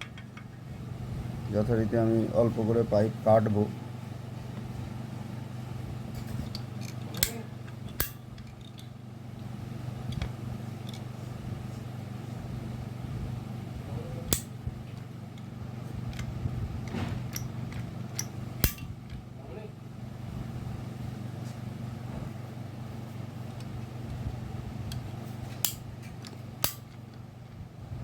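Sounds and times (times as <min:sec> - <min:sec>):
pipe cutter clicking: 0:18.2 - 0:18.9, 0:26.6 - 0:27.0.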